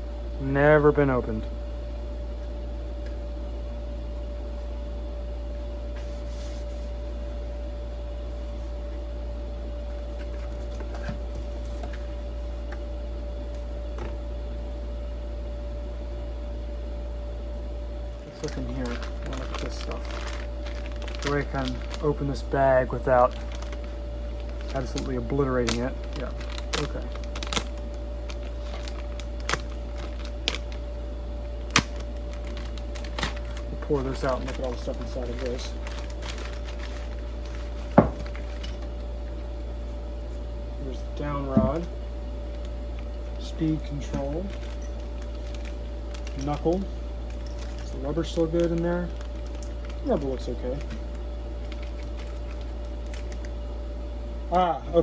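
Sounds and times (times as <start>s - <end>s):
faint whine: 0.0s - 55.0s
low electrical hum: 0.0s - 55.0s
packaging rustling and clicking: 9.9s - 12.8s, 18.2s - 31.0s, 31.6s - 39.6s, 42.5s - 53.5s
plastic bag crinkling: 18.2s - 31.0s, 31.6s - 40.4s, 42.5s - 53.5s.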